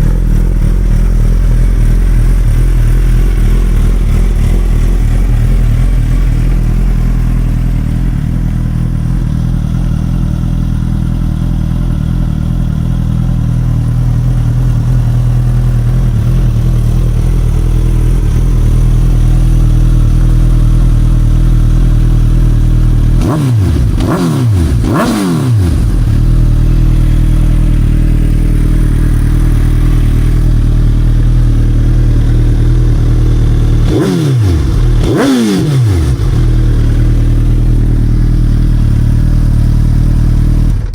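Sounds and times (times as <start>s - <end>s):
motorcycle engine idling: 0.0s - 40.9s
motorcycle throttle blips: 13.5s - 40.9s.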